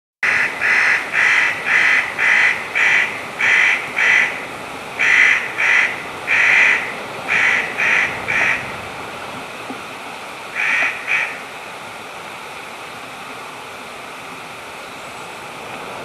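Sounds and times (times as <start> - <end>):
jay harsh rasping calls: 0.2 - 4.4, 5.0 - 8.7, 10.6 - 11.4.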